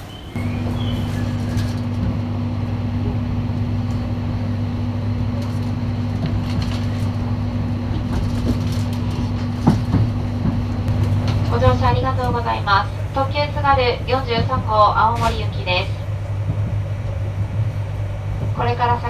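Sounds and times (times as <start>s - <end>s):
train equipment low hum: 0.0s - 19.0s.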